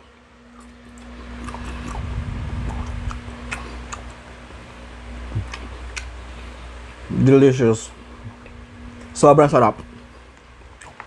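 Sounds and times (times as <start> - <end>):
steady low hum: 0.0 - 11.0
low mouthy rumble: 0.4 - 11.0
person chewing crunchy food: 0.6 - 4.2, 5.3 - 6.2, 10.3 - 11.0.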